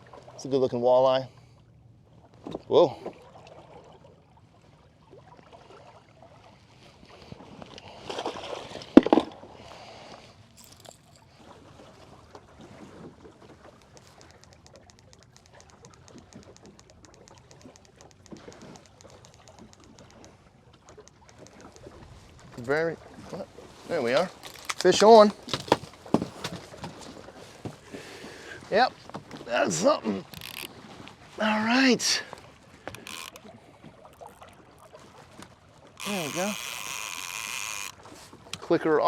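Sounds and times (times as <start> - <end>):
handling and rustling: 10.5 - 11.3, 23.6 - 27.9
fishing reel clicker: 13.8 - 21.9, 24.2 - 25.0, 30.3 - 30.7, 32.8 - 33.5, 34.1 - 34.9, 35.9 - 38.6.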